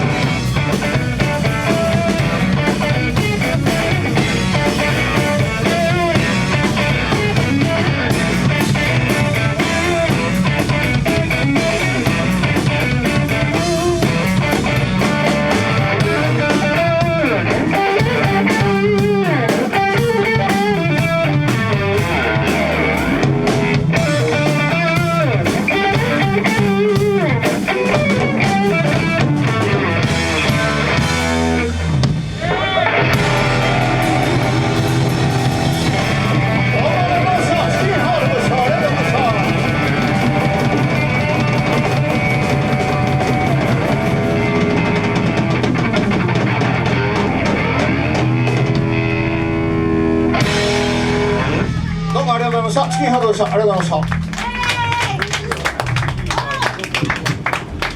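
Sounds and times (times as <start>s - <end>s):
drums: 0.0s - 57.9s
guitar with bending notes: 0.0s - 57.9s
rock band playing: 0.0s - 57.9s.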